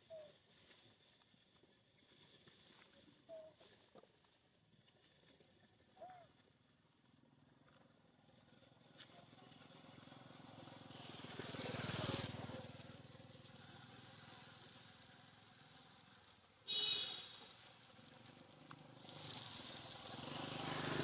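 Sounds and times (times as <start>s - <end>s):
motor vehicle passing by: 8.8s - 16.2s, 17.5s - 21.0s.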